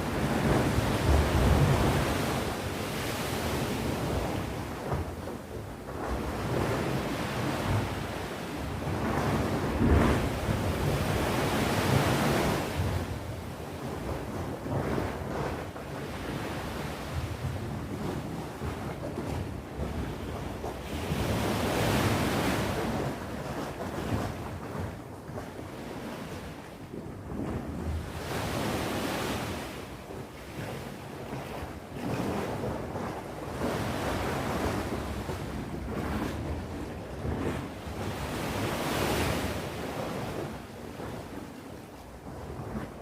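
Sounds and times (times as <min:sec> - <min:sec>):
sea waves breaking on shore: 0:00.0 - 0:43.0.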